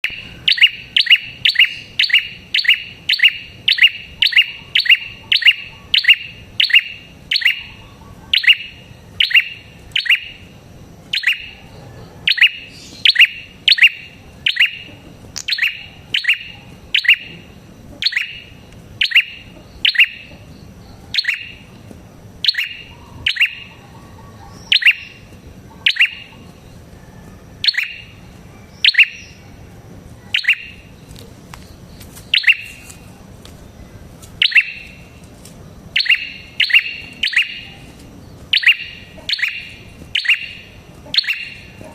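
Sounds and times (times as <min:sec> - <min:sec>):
bird sharp chirps: 0:00.0 - 0:10.5, 0:11.1 - 0:21.8, 0:22.4 - 0:26.9, 0:27.6 - 0:29.4, 0:30.2 - 0:33.0, 0:34.4 - 0:35.2, 0:35.8 - 0:41.9.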